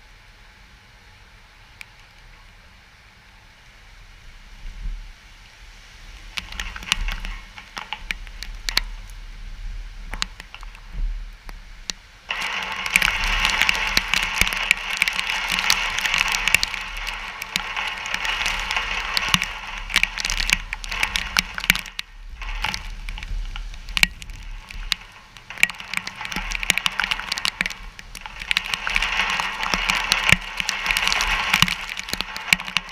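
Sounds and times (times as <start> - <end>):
rain: 0.0 - 32.9
wind: 0.0 - 32.9
sharp crackling clicks: 6.2 - 9.2, 10.0 - 32.9
rushing noise: 12.2 - 32.9.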